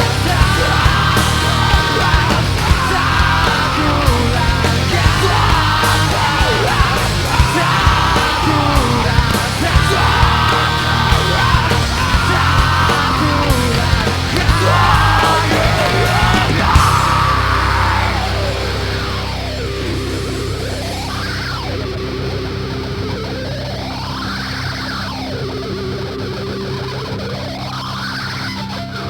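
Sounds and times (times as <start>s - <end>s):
shouted strained vocal: 0.0s - 19.0s
heavy rock music: 0.0s - 29.0s.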